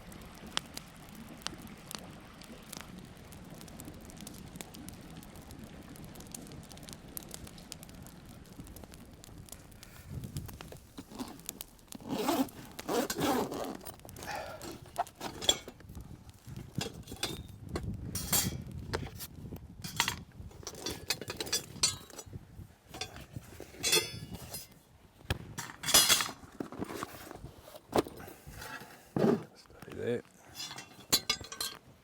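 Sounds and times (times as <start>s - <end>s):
cookware and utensils clinking: 14.3s - 15.8s, 16.8s - 17.5s, 18.2s - 19.2s, 19.8s - 22.2s, 23.0s - 24.7s, 25.6s - 26.4s, 30.4s - 31.9s.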